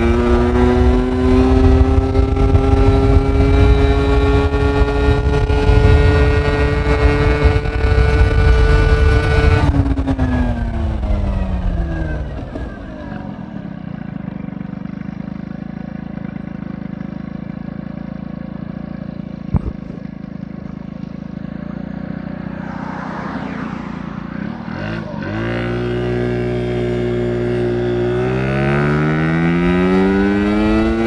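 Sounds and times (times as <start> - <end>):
scooter engine revving and idling: 0.0 - 22.6, 24.2 - 31.0.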